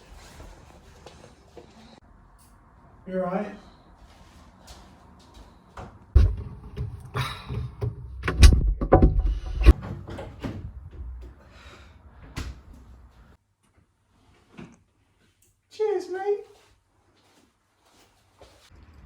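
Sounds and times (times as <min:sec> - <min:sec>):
low rumble: 0:06.2 - 0:09.8
knocks and clatters: 0:06.2 - 0:11.4.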